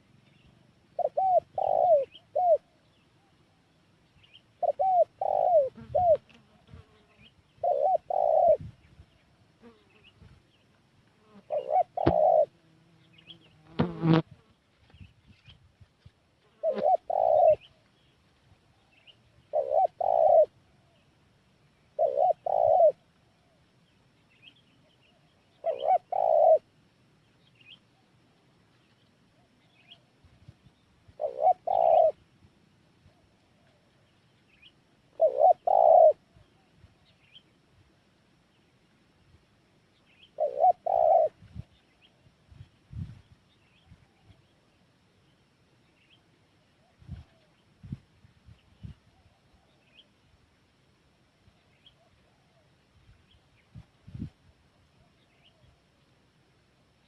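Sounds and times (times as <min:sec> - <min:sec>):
small birds chirping: 0:00.0 - 0:26.6, 0:27.2 - 0:32.3, 0:33.0 - 0:37.7, 0:38.4 - 0:50.3, 0:51.4 - 0:56.3
dove cooing: 0:00.9 - 0:03.4, 0:04.6 - 0:07.0, 0:07.6 - 0:08.7, 0:11.4 - 0:12.6, 0:16.6 - 0:17.8, 0:19.4 - 0:21.0, 0:22.0 - 0:23.6, 0:25.5 - 0:26.7, 0:31.1 - 0:32.2, 0:35.1 - 0:36.7, 0:40.4 - 0:41.7.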